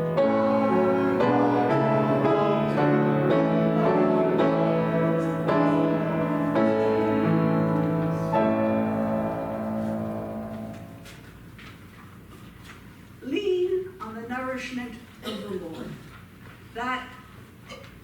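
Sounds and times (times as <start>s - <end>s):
piano playing slow chords: 0.0s - 11.2s.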